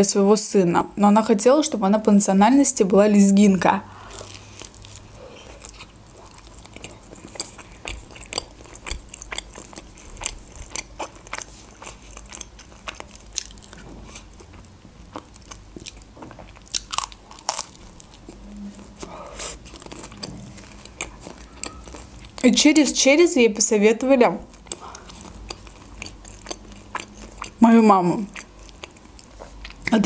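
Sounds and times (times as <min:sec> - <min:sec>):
person biting and chewing pizza: 0:03.9 - 0:22.4, 0:24.5 - 0:27.6.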